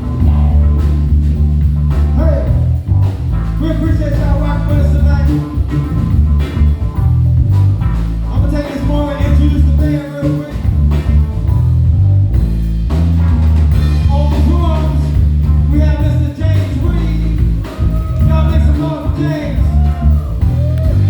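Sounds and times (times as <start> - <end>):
guitar: 0.0 - 21.0
heavy bass and drums: 0.0 - 21.0
live blues band playing: 0.0 - 21.0.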